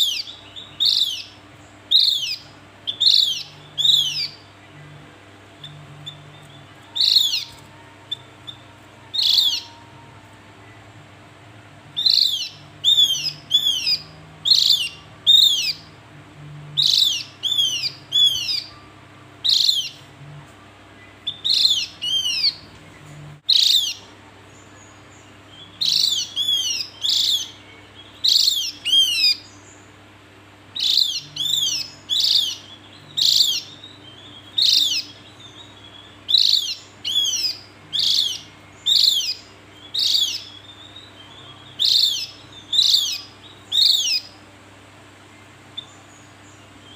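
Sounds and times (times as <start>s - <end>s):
bird chirping: 0.0s - 30.1s, 30.7s - 44.5s, 45.2s - 46.9s.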